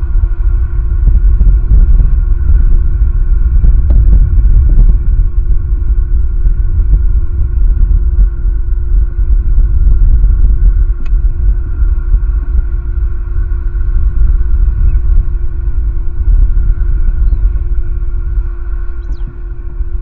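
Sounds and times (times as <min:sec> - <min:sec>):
steady electrical hum: 0:00.0 - 0:20.0
wind buffeting microphone: 0:00.0 - 0:20.0
faint high bird chirps: 0:17.0 - 0:17.6, 0:18.8 - 0:19.4.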